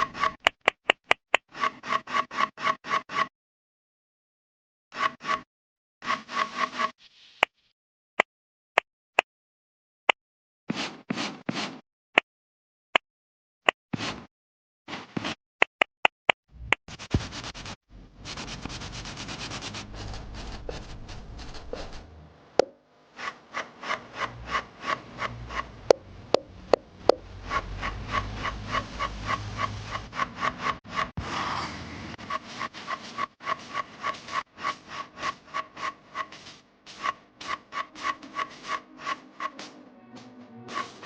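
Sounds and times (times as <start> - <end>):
stylus scratching on tablet: 0.0 - 0.5, 1.5 - 3.3, 6.0 - 7.0, 16.7 - 22.1, 23.1 - 39.7, 40.7 - 41.0.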